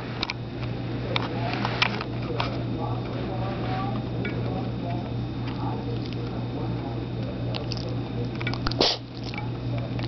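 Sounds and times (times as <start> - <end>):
dog sneezing: 8.7 - 9.1.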